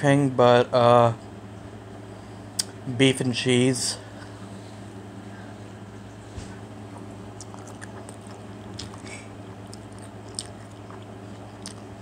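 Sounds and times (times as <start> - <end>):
steady low hum: 0.0 - 12.0
person chewing: 6.8 - 12.0
wet mouth clicks: 7.0 - 9.1, 9.7 - 11.9.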